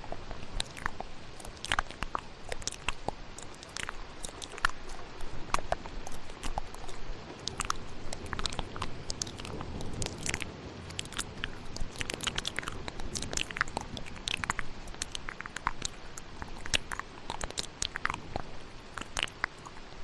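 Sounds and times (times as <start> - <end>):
wet mouth clicks and smacks: 0.0 - 20.0
thunderstorm rain: 7.9 - 14.8.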